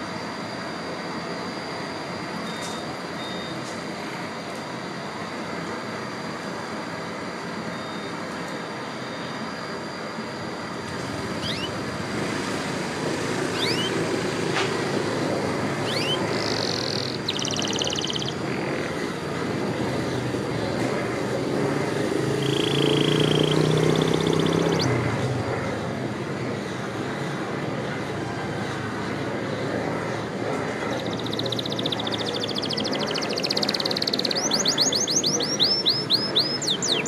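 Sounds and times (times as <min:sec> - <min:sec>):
steady background noise: 0:00.0 - 0:37.0
canaries chirping and trilling: 0:11.2 - 0:11.8, 0:13.4 - 0:14.0, 0:15.8 - 0:18.7, 0:22.3 - 0:24.9, 0:31.0 - 0:37.0.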